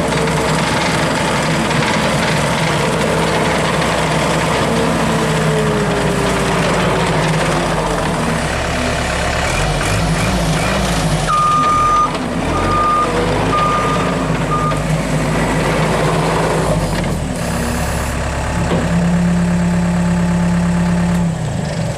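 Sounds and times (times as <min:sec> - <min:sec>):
diesel engine revving: 0:00.0 - 0:21.9
backup alarm beeping: 0:11.3 - 0:14.8.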